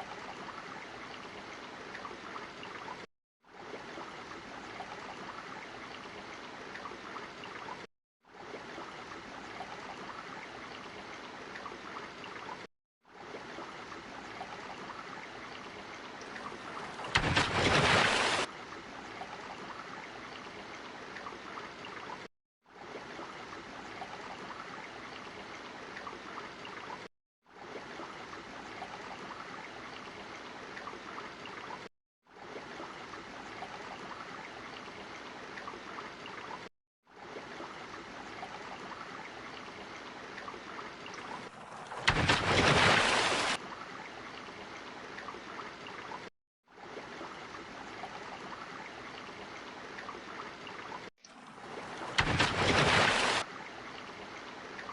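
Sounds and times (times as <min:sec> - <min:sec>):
water rushing steadily: 0:00.0 - 0:54.9
loud rush of water: 0:41.4 - 0:43.6, 0:51.4 - 0:53.5.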